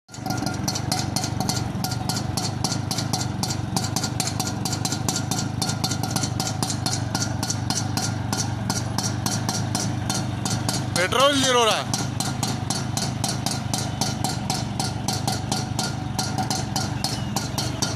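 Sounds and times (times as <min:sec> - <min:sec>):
rickshaw engine idling: 0:00.1 - 0:17.9.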